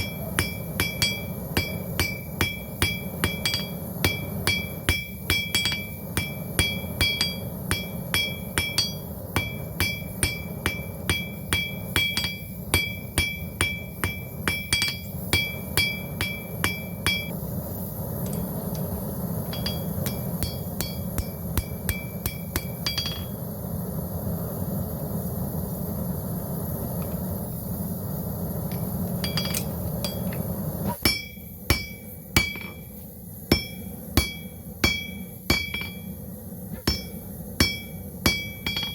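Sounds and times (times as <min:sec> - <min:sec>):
hammer striking steel on anvil: 0:00.0 - 0:17.4, 0:19.4 - 0:23.4, 0:28.7 - 0:32.9, 0:33.5 - 0:38.9.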